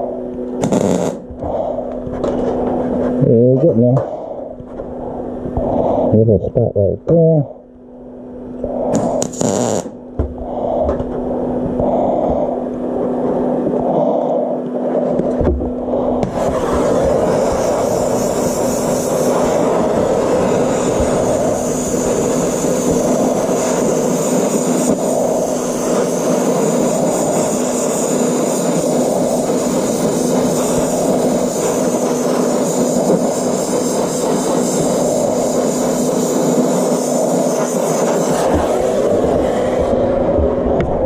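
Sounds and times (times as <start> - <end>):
constant low hum: 0.0 - 41.0
welding arc hissing: 0.6 - 1.8, 8.9 - 10.8, 16.2 - 40.0.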